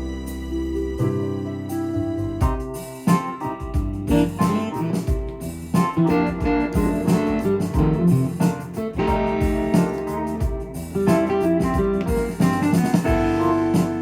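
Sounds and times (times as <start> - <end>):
backing bass and beat: 0.0 - 14.0
keyboard plucked guitar sound: 0.0 - 14.0.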